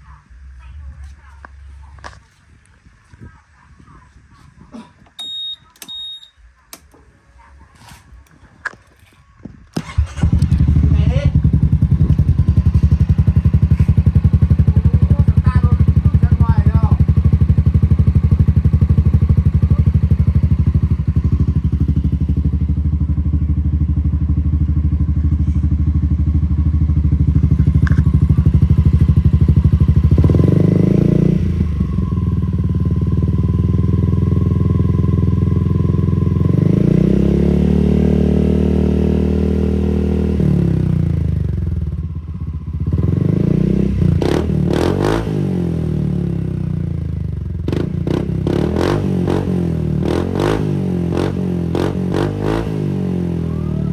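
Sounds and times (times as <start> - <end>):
exhaust crackles: 9.8 - 36.9
scooter engine idling and revving: 9.8 - 53.9.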